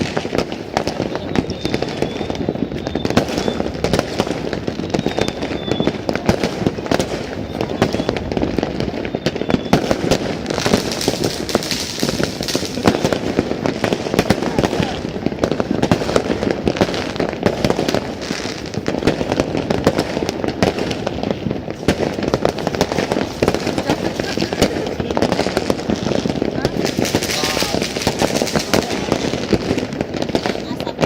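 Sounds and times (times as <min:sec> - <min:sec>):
fireworks crackling and banging: 0:00.0 - 0:31.0.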